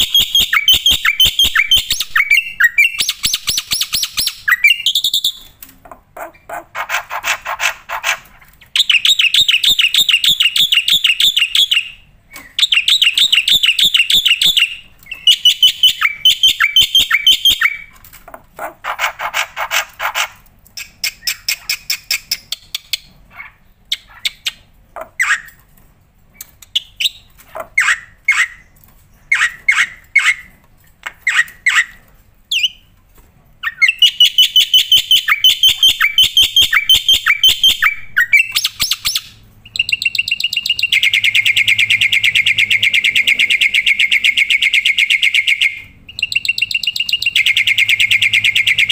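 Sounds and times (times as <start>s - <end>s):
sharp bird calls: 0.0s - 5.6s, 6.2s - 18.0s, 26.7s - 30.6s, 33.6s - 48.9s
bird singing rattling song: 0.0s - 25.6s, 26.3s - 32.9s, 33.6s - 48.9s.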